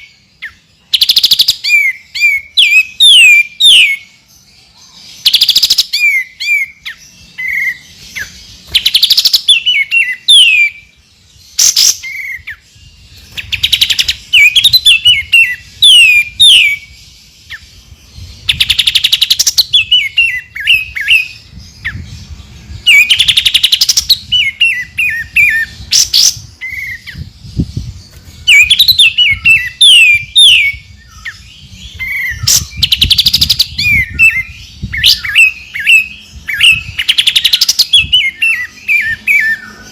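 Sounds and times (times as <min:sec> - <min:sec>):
bird whistling song: 0:00.0 - 0:39.9
buzzy rattling bird calls: 0:05.0 - 0:10.7, 0:13.0 - 0:16.8, 0:22.4 - 0:39.9.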